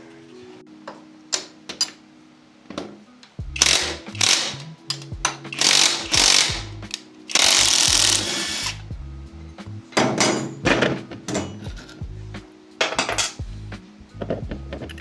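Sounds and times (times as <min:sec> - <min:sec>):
handheld power tool bursts: 0:03.6 - 0:04.7, 0:05.5 - 0:08.8.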